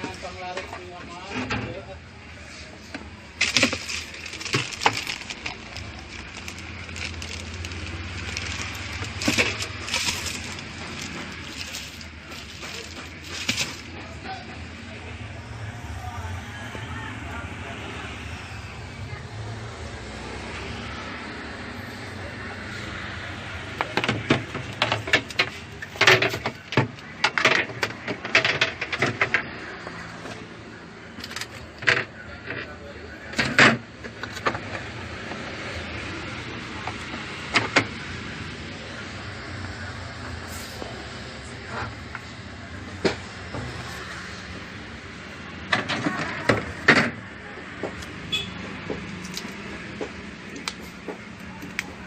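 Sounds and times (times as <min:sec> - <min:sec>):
plastic parts clicking and knocking: 0:02.9 - 0:14.2, 0:23.8 - 0:29.5.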